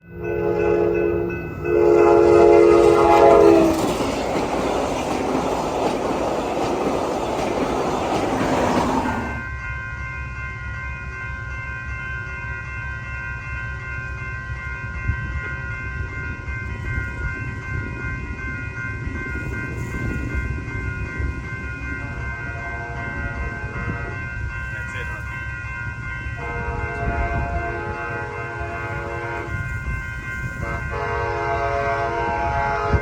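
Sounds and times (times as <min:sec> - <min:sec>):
train passing on rails: 0:00.0 - 0:33.0
train horn blasts: 0:00.1 - 0:04.0, 0:22.5 - 0:24.4, 0:26.4 - 0:33.0.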